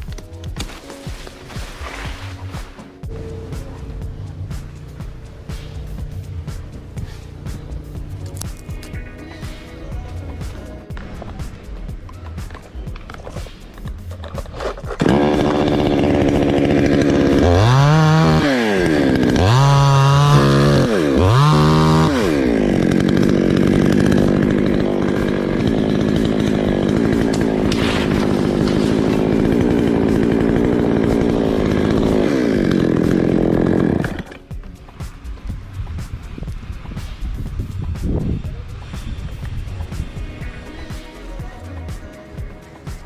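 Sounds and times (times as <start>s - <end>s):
chainsaw revving: 1.8s - 34.6s, 35.2s - 43.0s.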